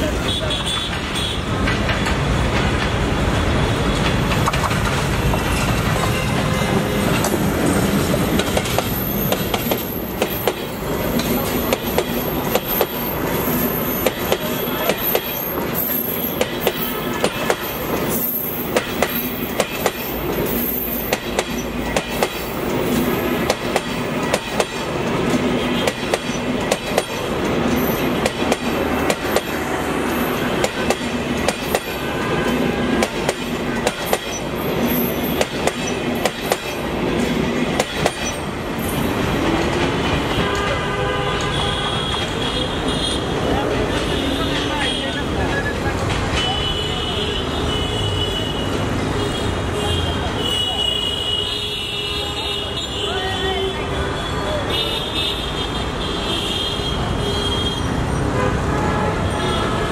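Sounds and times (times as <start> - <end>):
train wheels rumbling on rails: 0.0 - 51.9
wheels clicking over rail joints: 0.7 - 13.0, 13.9 - 38.6.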